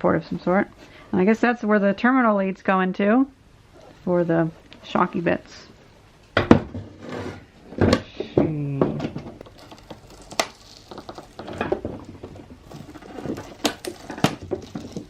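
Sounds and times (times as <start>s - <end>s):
person humming: 8.1s - 9.2s.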